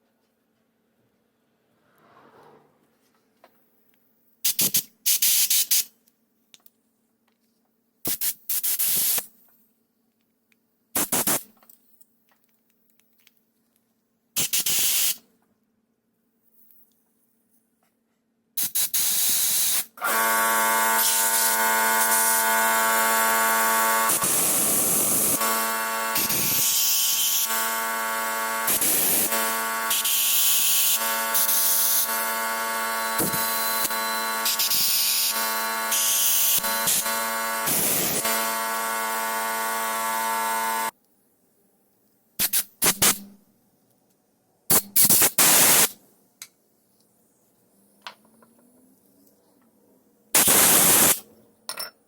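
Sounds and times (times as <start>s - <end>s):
electric machine buzzing: 20.0s - 40.9s
hissing blasts: 50.4s - 51.2s.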